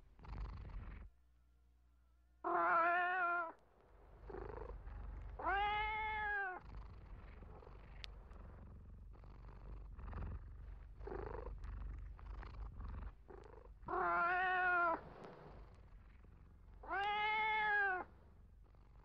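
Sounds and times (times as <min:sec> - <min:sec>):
cat purring: 0:00.0 - 0:01.2, 0:02.4 - 0:19.0
cat meowing: 0:02.4 - 0:03.6, 0:05.4 - 0:06.6, 0:13.9 - 0:15.0, 0:16.8 - 0:18.1.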